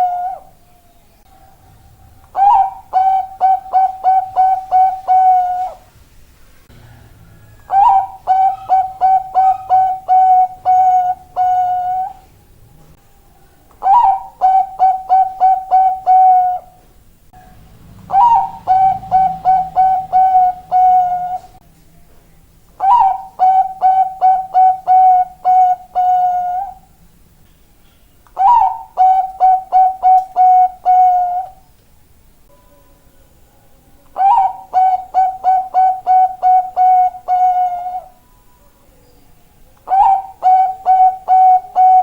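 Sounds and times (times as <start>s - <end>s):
dove staccato cooing: 0.0s - 0.6s, 1.4s - 5.9s, 6.8s - 12.2s, 13.7s - 16.8s, 18.0s - 21.6s, 22.8s - 26.9s, 28.3s - 31.6s, 34.1s - 38.2s, 39.8s - 42.0s.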